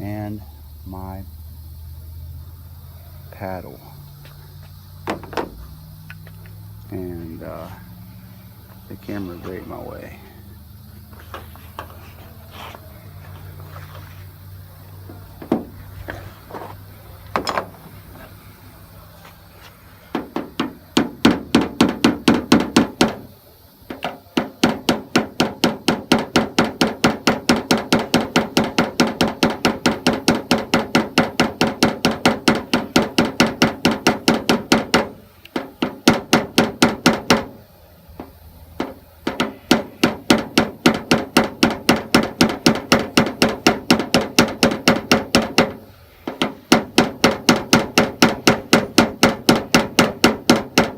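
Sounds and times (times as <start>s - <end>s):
hammer tapping on metal panel: 5.0s - 6.2s, 15.4s - 15.8s, 20.1s - 37.6s, 38.2s - 50.9s.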